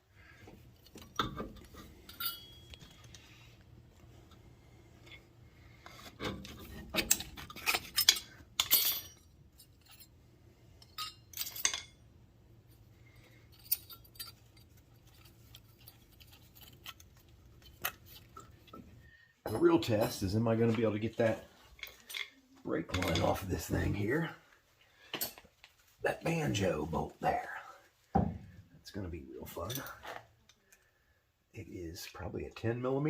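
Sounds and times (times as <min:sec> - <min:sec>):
faint low hum: 0:00.1 - 0:33.0
metal tools clinking: 0:00.8 - 0:03.3, 0:05.9 - 0:12.0, 0:13.0 - 0:18.9, 0:19.5 - 0:20.4, 0:21.6 - 0:24.3, 0:29.5 - 0:30.8.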